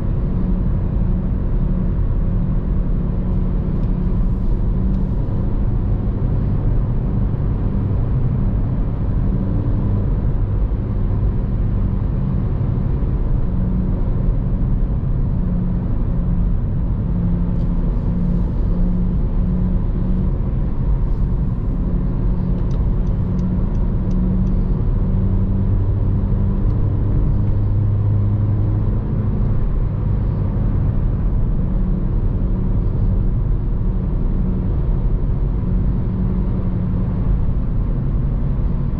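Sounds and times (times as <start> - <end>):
car engine running: 0.0 - 38.9
road and tyre rumble: 0.0 - 38.9.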